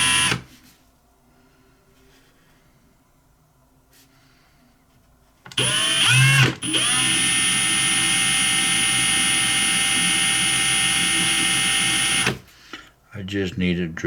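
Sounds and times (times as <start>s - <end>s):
small electric drill whining: 0.0s - 0.5s, 5.5s - 12.5s.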